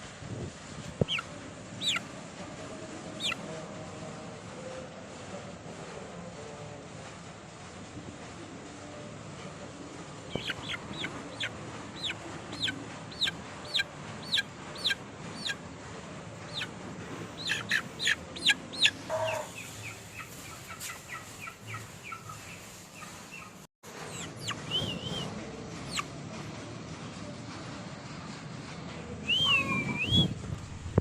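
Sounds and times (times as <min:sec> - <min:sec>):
chicks peeping: 0:01.0 - 0:02.1, 0:03.2 - 0:03.4, 0:10.3 - 0:15.6, 0:16.4 - 0:16.7, 0:17.4 - 0:25.3, 0:25.9 - 0:26.1
chicken clucking: 0:01.0 - 0:05.4, 0:09.4 - 0:26.4.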